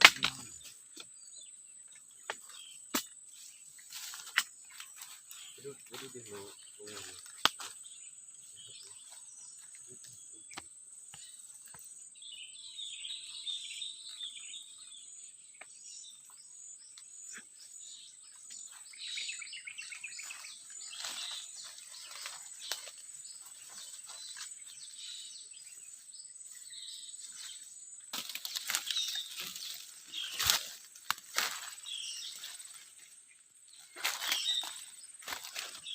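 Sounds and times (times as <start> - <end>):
bird chirps: 0.0 - 35.9
rustling of brush: 2.4 - 9.8, 20.0 - 35.9.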